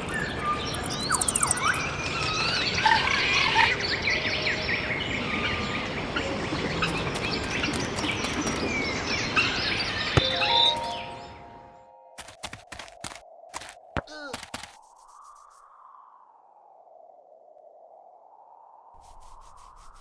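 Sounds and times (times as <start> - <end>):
birds chirping and calling: 0.0 - 11.8.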